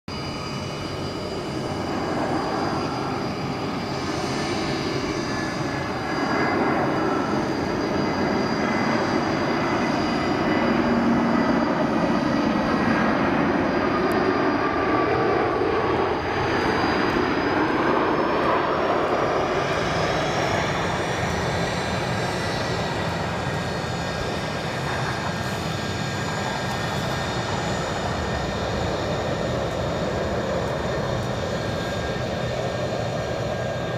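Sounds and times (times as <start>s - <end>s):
jet engines rumbling and whining: 0.1s - 33.9s.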